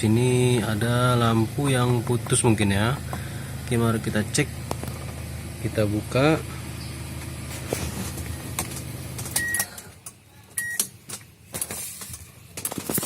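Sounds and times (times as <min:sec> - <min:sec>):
car engine idling: 0:00.0 - 0:10.3.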